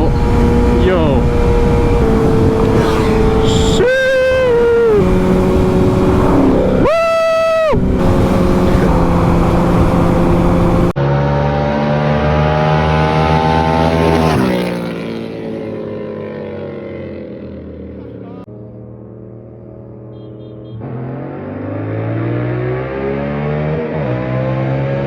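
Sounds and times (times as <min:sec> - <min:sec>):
motorcycle engine running: 0:00.0 - 0:11.0, 0:14.0 - 0:20.8
road and wind noise: 0:00.0 - 0:25.0.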